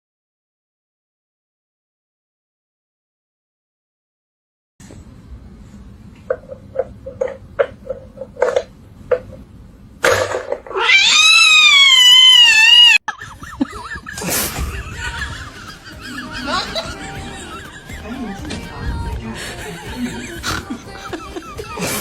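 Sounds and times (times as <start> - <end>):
loud long animal call: 10.7 - 13.0.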